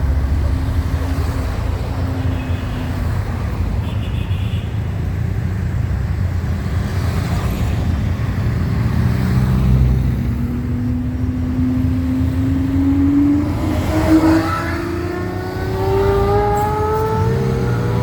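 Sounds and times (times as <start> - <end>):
car engine rumbling and accelerating: 5.7 - 18.0.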